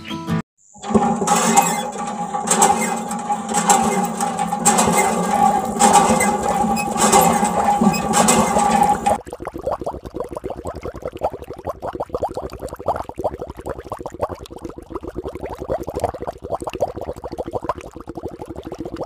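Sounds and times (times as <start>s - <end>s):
electric water pump humming: 0.8s - 9.2s.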